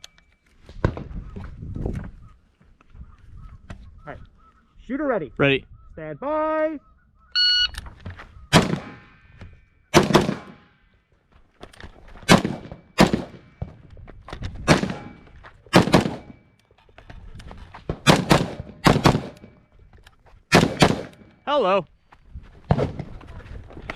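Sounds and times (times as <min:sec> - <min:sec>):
rifle shots: 0:08.5 - 0:09.2, 0:09.9 - 0:10.7, 0:12.3 - 0:13.7, 0:14.6 - 0:16.4, 0:17.9 - 0:19.6, 0:20.5 - 0:21.3.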